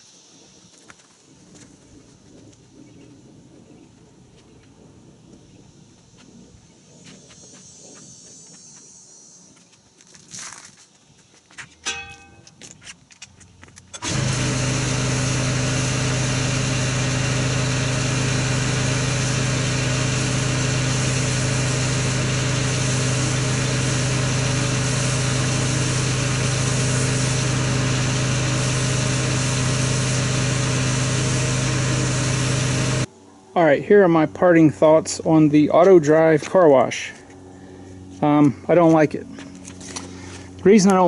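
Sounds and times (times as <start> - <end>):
motor humming with hiss: 14.0 - 33.1.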